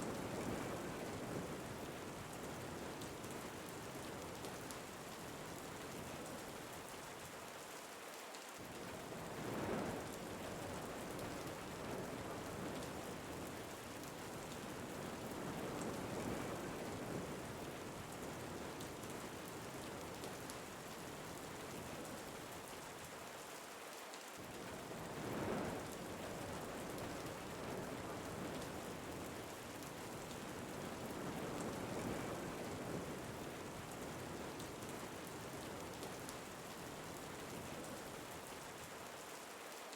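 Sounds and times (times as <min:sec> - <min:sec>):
steady rain falling: 0:00.0 - 0:39.9
wind gusts: 0:08.8 - 0:22.6, 0:24.4 - 0:38.4.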